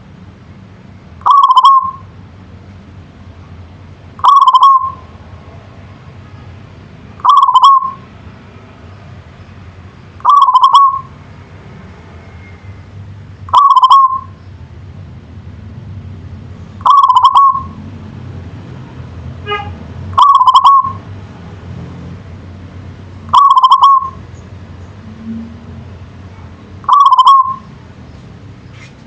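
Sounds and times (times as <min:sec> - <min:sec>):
dove cooing: 0:01.2 - 0:02.0, 0:04.2 - 0:05.0, 0:07.2 - 0:08.0, 0:10.2 - 0:11.1, 0:13.5 - 0:14.3, 0:16.8 - 0:17.8, 0:20.2 - 0:21.0, 0:23.3 - 0:24.2, 0:26.9 - 0:27.6.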